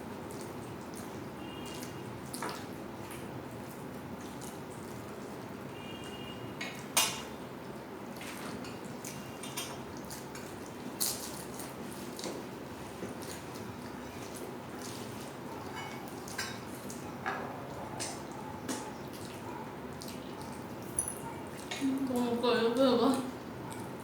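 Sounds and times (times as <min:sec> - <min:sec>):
plates and utensils clinking: 0:15.7 - 0:17.5.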